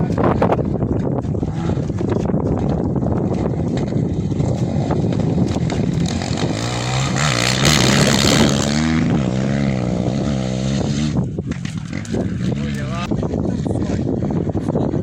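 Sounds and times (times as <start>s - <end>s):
rally car engine passing at speed: 4.4s - 11.2s.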